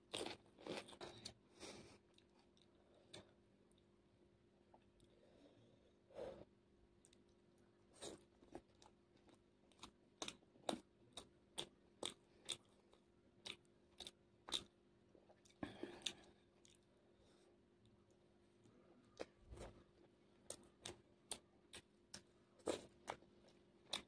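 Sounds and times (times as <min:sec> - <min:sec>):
crunchy chewing: 0:00.1 - 0:01.4, 0:07.0 - 0:24.0.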